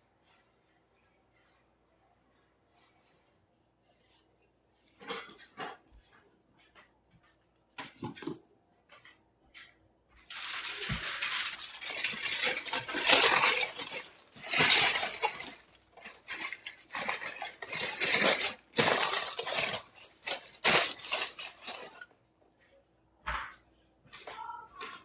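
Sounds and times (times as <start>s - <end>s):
hard objects scraping and clattering: 7.8s - 8.5s, 9.6s - 22.2s.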